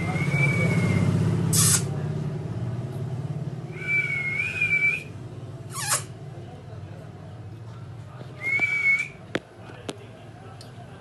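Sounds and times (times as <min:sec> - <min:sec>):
parrot whistle: 0:03.7 - 0:05.1.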